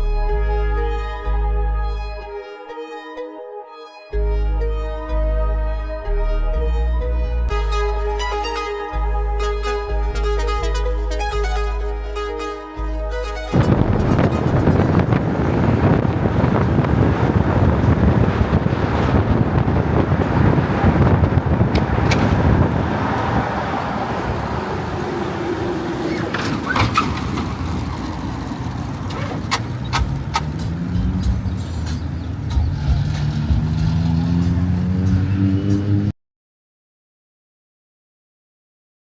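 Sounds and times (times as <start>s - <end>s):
vehicle engine revving: 13.5s - 36.1s.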